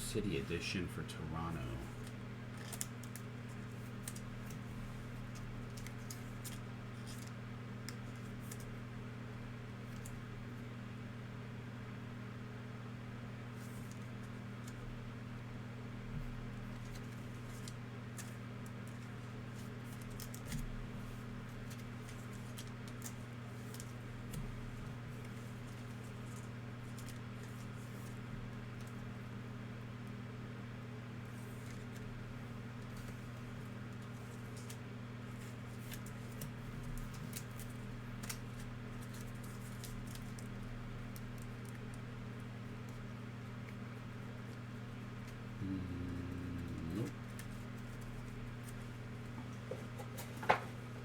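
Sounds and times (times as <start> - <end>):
steady low hum: 0.0 - 2.5, 44.2 - 49.5
low electrical hum: 0.0 - 51.0.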